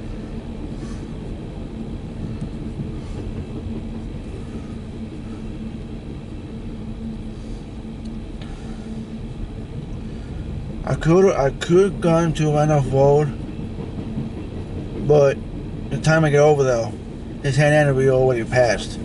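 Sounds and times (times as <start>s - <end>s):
train cars rolling past: 0.0s - 19.0s.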